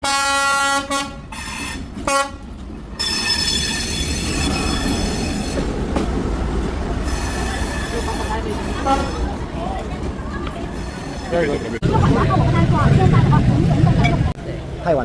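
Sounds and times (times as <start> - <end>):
train horn blast: 0.0 - 2.4, 8.7 - 9.3
train rumbling past: 0.0 - 15.0
high-pitched wheel squeal: 3.0 - 5.6.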